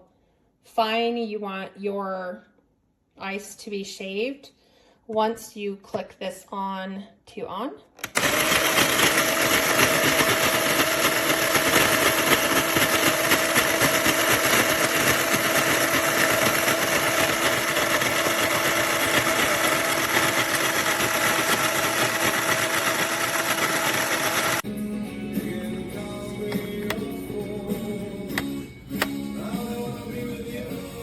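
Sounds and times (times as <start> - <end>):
ice shaver motor whirring: 8.0 - 24.6
blades shaving ice cubes: 8.1 - 24.6.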